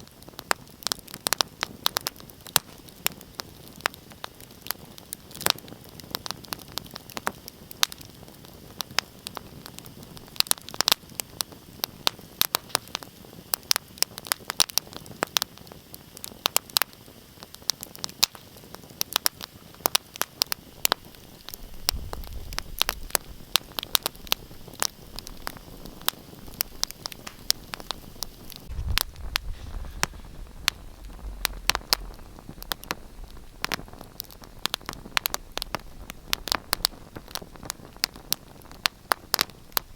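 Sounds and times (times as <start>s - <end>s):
soft fire hiss: 0.0s - 39.9s
wood fire crackling and popping: 0.0s - 39.9s
low rumble: 28.6s - 36.5s.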